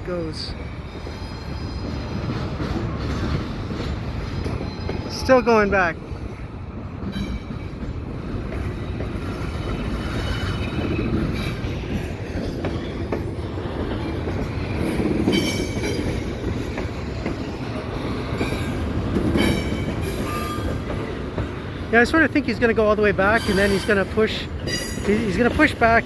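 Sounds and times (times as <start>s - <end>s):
railcars rumbling: 0.0s - 26.0s
high wheel squeals: 9.3s - 11.9s, 19.4s - 20.9s.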